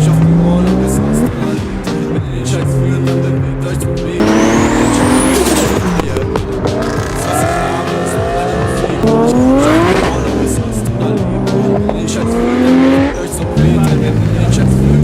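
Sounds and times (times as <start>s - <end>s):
car engine accelerating hard: 0.0s - 15.0s
high whine: 4.2s - 14.3s.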